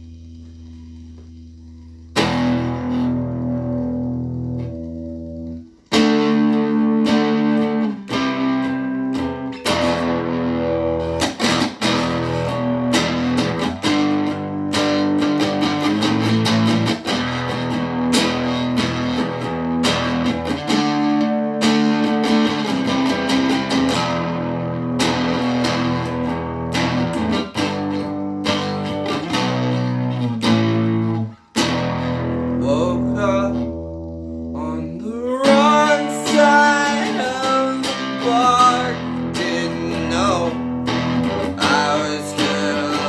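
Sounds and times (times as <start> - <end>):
guitar strumming chords: 0.0 - 43.0.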